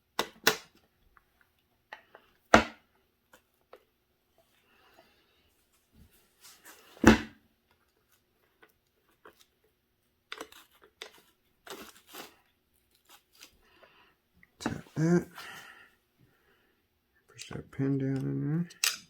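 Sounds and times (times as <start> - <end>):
small parts clicking: 18.1 - 19.0.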